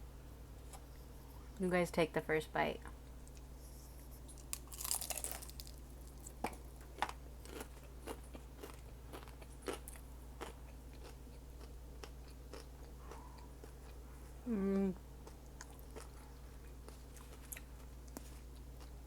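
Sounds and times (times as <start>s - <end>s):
person chewing with crunches: 4.2s - 19.0s
crunchy taco bite: 4.3s - 14.0s.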